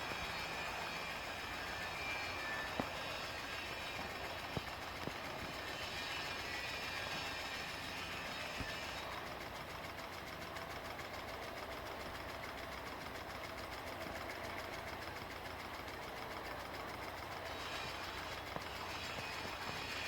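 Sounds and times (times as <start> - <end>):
irrigator turbine mechanical clatter: 0.0 - 20.0.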